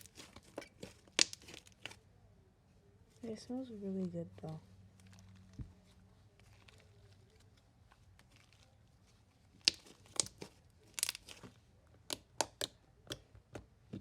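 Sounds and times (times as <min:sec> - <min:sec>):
sharp pops and crackles: 0:00.0 - 0:02.0, 0:09.6 - 0:11.5
slime being squished by hand: 0:00.0 - 0:02.0, 0:09.4 - 0:13.2.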